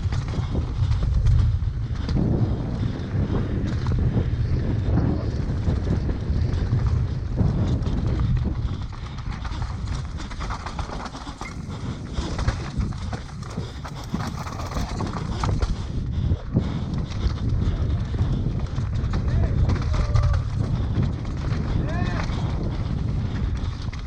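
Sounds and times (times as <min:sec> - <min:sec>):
wind buffeting microphone: 0:00.0 - 0:24.0
bike tyres clattering over rocks: 0:08.9 - 0:15.8, 0:18.5 - 0:24.0.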